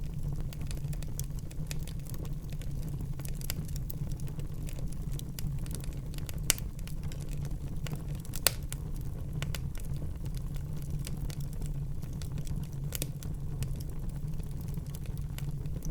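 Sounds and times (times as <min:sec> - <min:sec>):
fire flames rumbling and crackling: 0:00.0 - 0:15.9
loud sharp pops from fire: 0:00.1 - 0:15.9.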